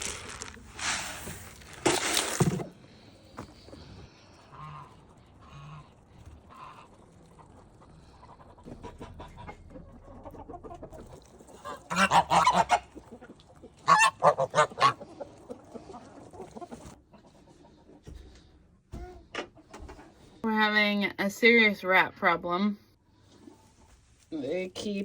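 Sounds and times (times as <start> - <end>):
waterfowl calling: 3.6 - 17.0.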